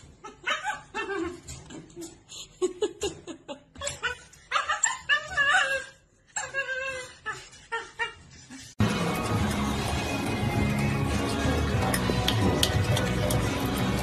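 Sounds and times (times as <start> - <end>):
dogs whining and yipping: 0.0 - 2.2, 3.7 - 8.8
music: 8.8 - 14.0.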